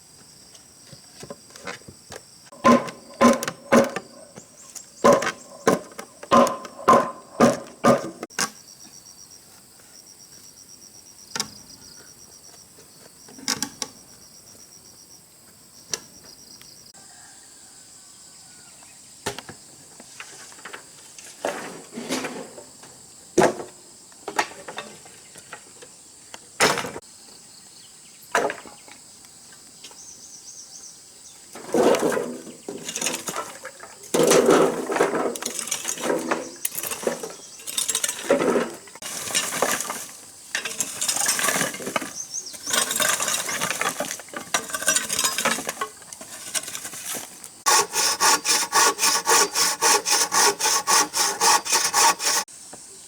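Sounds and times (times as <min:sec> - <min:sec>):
insects chirping: 0:00.0 - 0:20.2, 0:22.5 - 0:53.0
hand tool striking wood: 0:02.5 - 0:08.3, 0:47.7 - 0:52.5.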